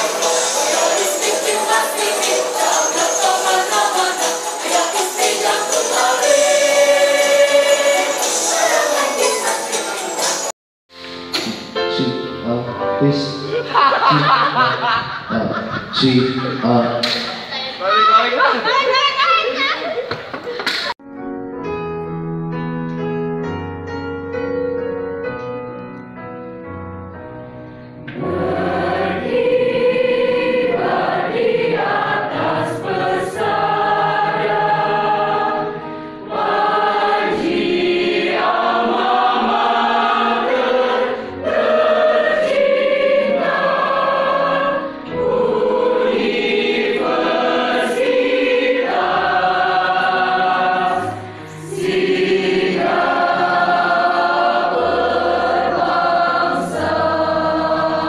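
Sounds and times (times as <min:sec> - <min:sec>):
mixed choir singing: 0:00.0 - 0:10.5, 0:13.4 - 0:17.4, 0:28.1 - 0:58.0.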